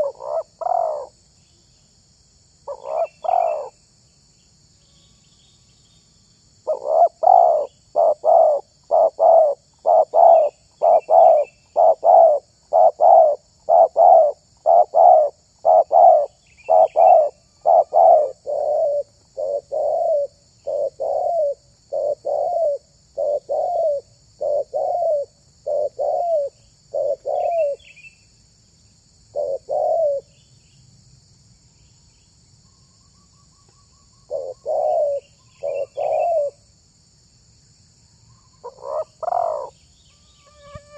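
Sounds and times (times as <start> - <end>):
dove cooing: 0.0 - 1.1, 2.7 - 3.7, 6.6 - 27.9, 29.3 - 30.3, 34.3 - 36.6, 38.6 - 39.7
faint bird chirps: 0.0 - 30.9, 31.6 - 36.7, 38.0 - 40.9
high insect hum: 0.0 - 40.9.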